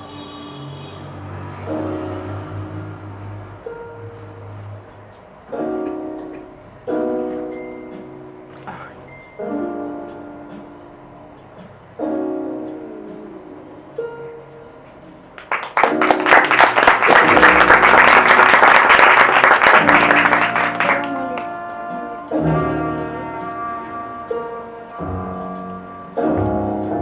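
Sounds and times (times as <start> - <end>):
stage music with held notes: 3.6 - 27.0
audience applause: 15.4 - 21.5.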